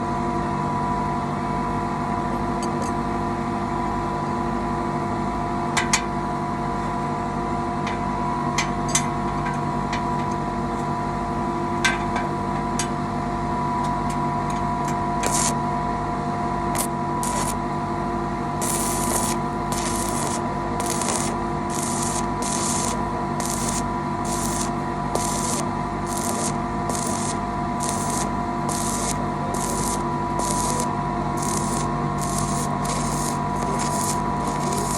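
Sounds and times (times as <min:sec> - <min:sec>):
welding arc hissing: 0:15.2 - 0:15.6, 0:16.7 - 0:17.7, 0:18.6 - 0:34.9
welding machine hum: 0:15.2 - 0:15.7, 0:16.7 - 0:34.9
sharp clicks: 0:16.8 - 0:17.6.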